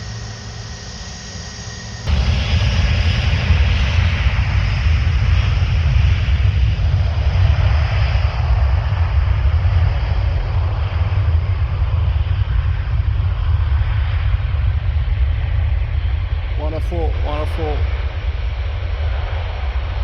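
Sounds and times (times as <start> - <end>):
jet engines at takeoff power: 0.0 - 20.0.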